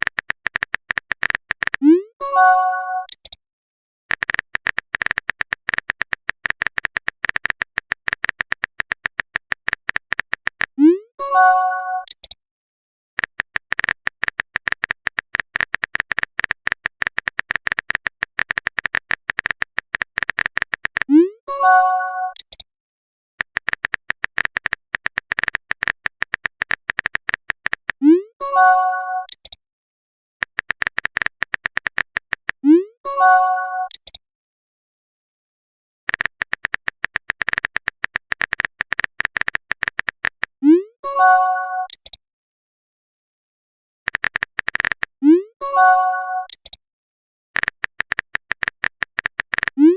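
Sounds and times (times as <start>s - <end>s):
keyboard key clicks: 0.0s - 1.8s, 4.1s - 10.7s, 13.2s - 21.1s, 23.4s - 28.0s, 30.4s - 32.6s, 36.1s - 40.5s, 44.1s - 45.1s, 47.6s - 49.8s
chiming notification tone: 2.2s - 3.1s, 21.5s - 22.4s, 28.4s - 29.3s, 33.1s - 33.9s, 41.1s - 41.9s, 45.6s - 46.5s.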